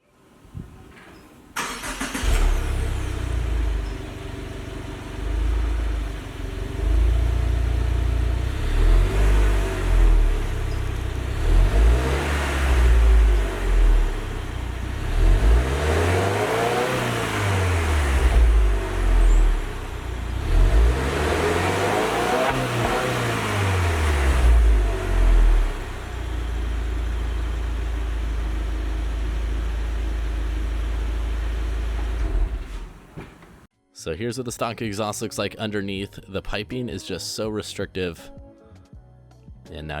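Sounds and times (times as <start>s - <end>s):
car engine starting: 0.4s - 33.7s
car engine idling and revving: 1.6s - 33.7s.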